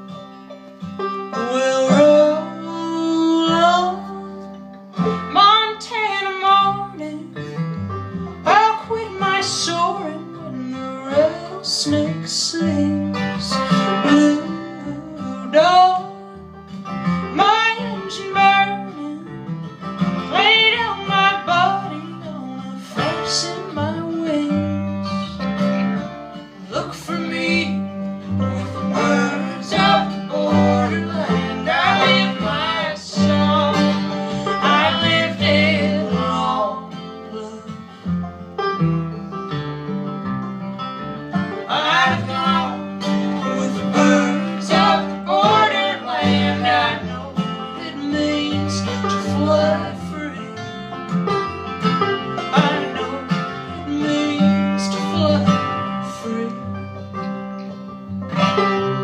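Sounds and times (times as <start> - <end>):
banjo: 0.0 - 59.0
plucked guitar: 0.0 - 59.0
person singing: 1.3 - 4.7, 8.4 - 16.6, 17.3 - 19.4, 20.3 - 25.0, 26.7 - 38.0, 41.6 - 50.9, 52.4 - 56.9
bass line: 23.4 - 59.0.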